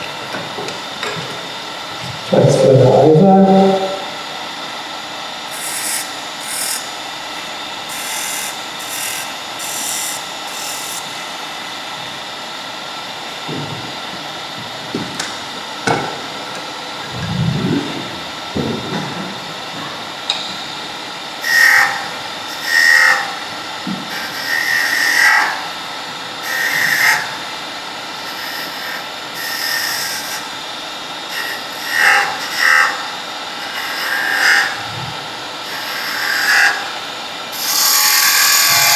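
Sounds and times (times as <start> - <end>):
wood lathe running: 0.0 - 17.1, 18.0 - 38.9
turning tool cutting wood: 4.8 - 12.7, 21.4 - 25.7, 26.4 - 27.4, 28.2 - 30.6, 31.3 - 34.8, 35.7 - 37.0, 37.6 - 38.9.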